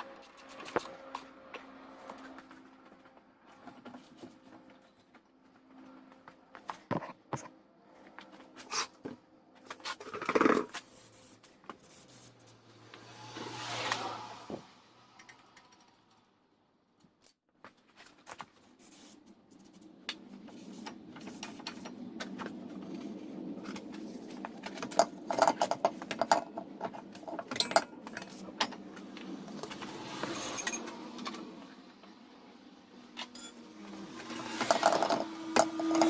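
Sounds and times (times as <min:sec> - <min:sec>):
metal tools clinking: 0:27.2 - 0:28.8, 0:30.3 - 0:30.9, 0:33.3 - 0:33.6.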